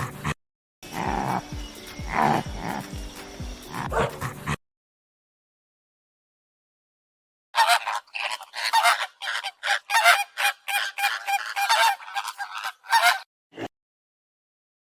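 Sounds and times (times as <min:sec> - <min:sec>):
birds giving harsh calls: 0:00.8 - 0:04.4, 0:07.6 - 0:13.3.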